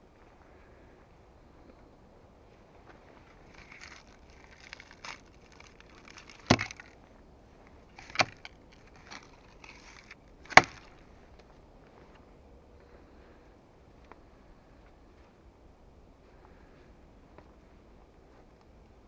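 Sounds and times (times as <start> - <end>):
wood scraping and rustling: 3.3 - 7.0, 8.0 - 11.0
hand tool striking wood: 3.6 - 6.9, 8.0 - 10.9.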